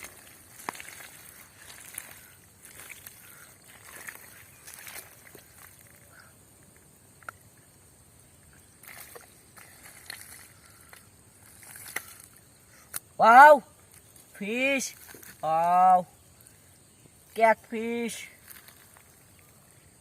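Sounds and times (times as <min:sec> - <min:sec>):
water sloshing and splashing: 0:00.0 - 0:06.7, 0:08.4 - 0:12.6.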